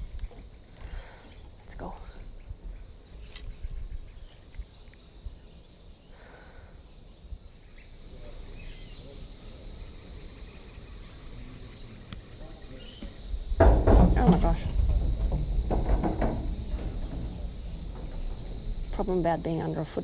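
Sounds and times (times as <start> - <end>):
insects chirring: 0.0 - 20.0
short knocks: 13.0 - 19.8
low rumble: 13.4 - 20.0.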